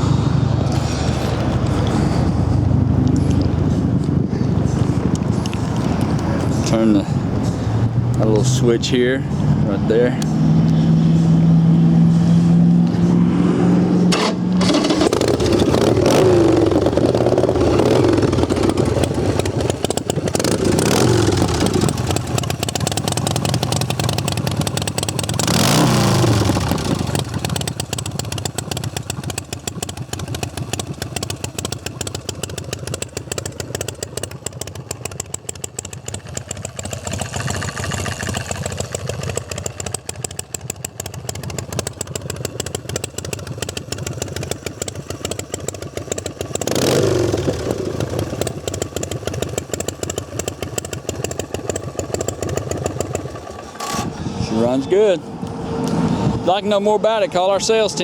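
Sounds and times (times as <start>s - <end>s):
motorcycle engine revving and idling: 0.0s - 58.0s
motorcycle engine cranking: 14.0s - 56.6s.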